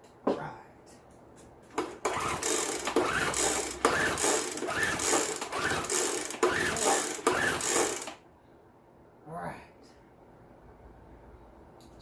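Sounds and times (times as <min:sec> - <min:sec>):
recoil starter whirring: 0:01.7 - 0:08.2.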